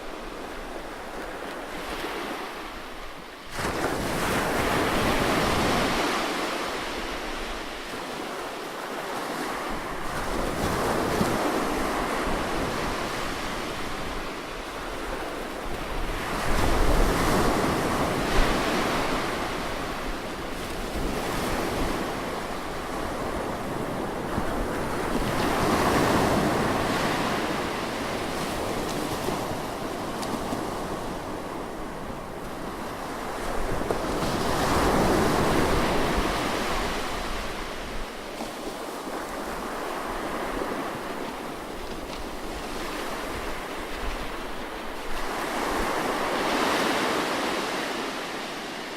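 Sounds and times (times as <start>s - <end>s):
ocean surf breaking: 3.5s - 48.9s
wind rumble on microphone: 9.4s - 46.5s.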